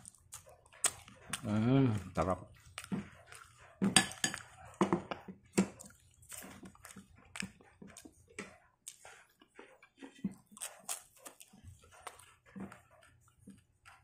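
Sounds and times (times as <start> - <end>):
person chewing: 0.0 - 14.0.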